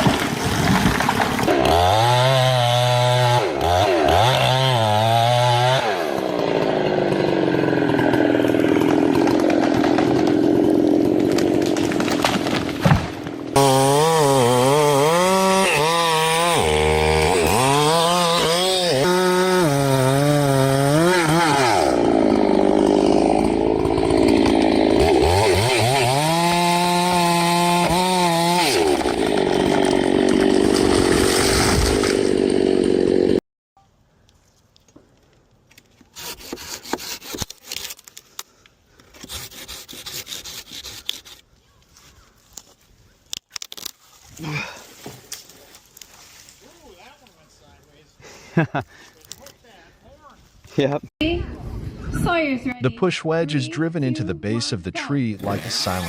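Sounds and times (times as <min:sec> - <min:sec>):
chainsaw cutting wood: 0:00.0 - 0:33.4, 0:36.1 - 0:38.1, 0:39.0 - 0:41.4, 0:55.4 - 0:56.0.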